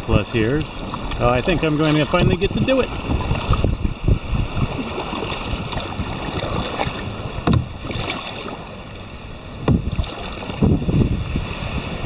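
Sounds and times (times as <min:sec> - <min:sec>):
water sloshing against kayak: 0:00.0 - 0:12.0
loud splashes: 0:04.6 - 0:08.6.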